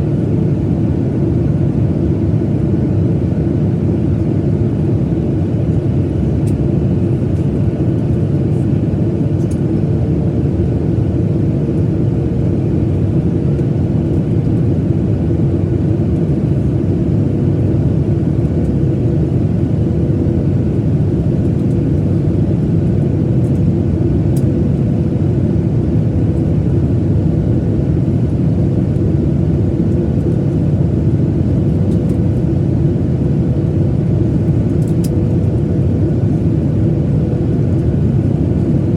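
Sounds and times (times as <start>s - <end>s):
jet engines roaring in cabin: 0.0s - 38.9s.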